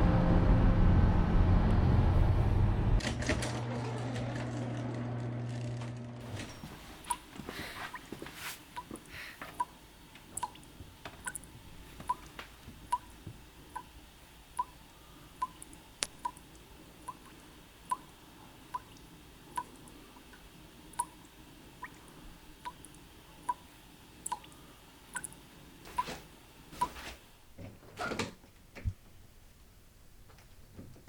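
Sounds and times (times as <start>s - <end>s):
water dripping: 6.3s - 27.0s.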